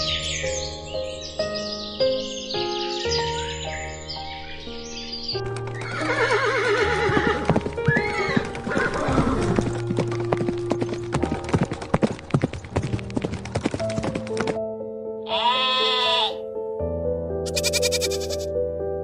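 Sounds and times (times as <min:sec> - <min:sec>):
background music: 0:00.0 - 0:19.0
hoof clip-clops: 0:05.4 - 0:14.6
horse whinnying: 0:05.8 - 0:09.6, 0:15.3 - 0:16.4, 0:17.5 - 0:18.5.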